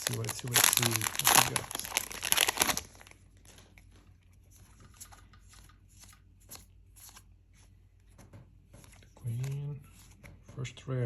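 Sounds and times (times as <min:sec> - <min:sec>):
foil wrapper crinkling: 0:00.0 - 0:03.9
trading cards rustling: 0:00.0 - 0:04.0.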